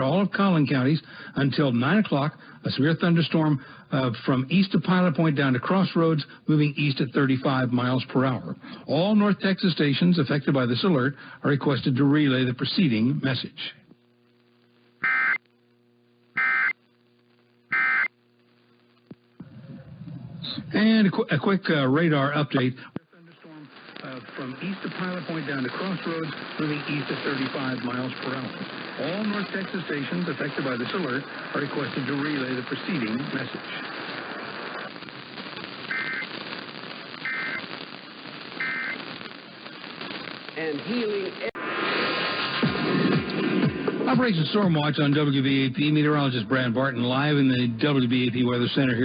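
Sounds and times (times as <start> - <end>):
radio static hiss: 0.0 - 49.0
buzzy digital data tone bursts: 15.0 - 15.4, 16.3 - 16.8, 17.7 - 18.2, 34.8 - 41.6.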